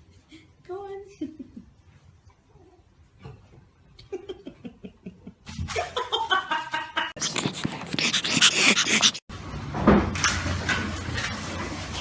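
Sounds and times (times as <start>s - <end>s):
puppy crying: 7.2s - 9.3s.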